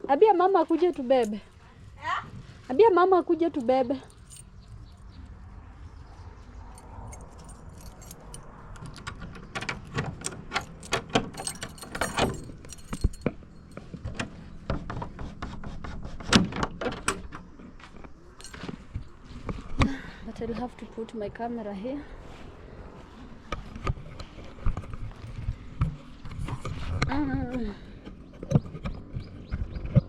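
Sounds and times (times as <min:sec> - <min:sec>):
metal keys jangling: 0:00.5 - 0:01.6, 0:03.5 - 0:05.1, 0:06.7 - 0:14.4, 0:18.3 - 0:19.2
lock clicking: 0:07.1 - 0:14.3.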